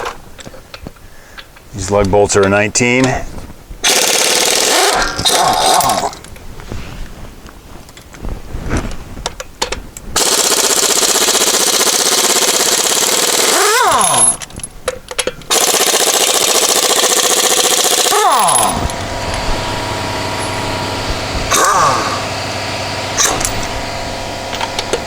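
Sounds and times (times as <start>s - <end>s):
impact wrench hammering: 10.2s - 14.5s, 15.5s - 25.0s.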